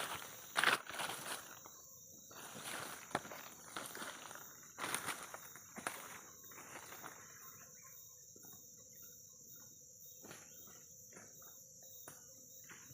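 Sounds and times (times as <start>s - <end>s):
high-pitched insect drone: 0.0s - 12.9s
bird chirps: 6.0s - 12.9s.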